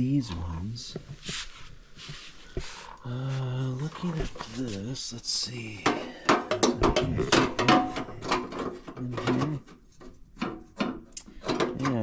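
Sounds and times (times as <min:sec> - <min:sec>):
hoses rubbing and scraping: 0:00.3 - 0:05.8.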